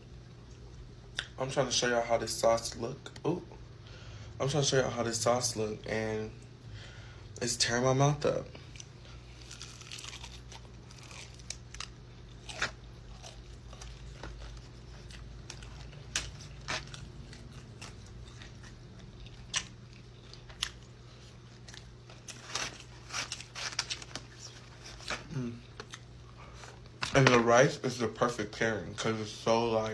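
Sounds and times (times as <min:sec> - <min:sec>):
steady low hum: 0:00.0 - 0:29.9
crunchy chewing: 0:08.6 - 0:27.0.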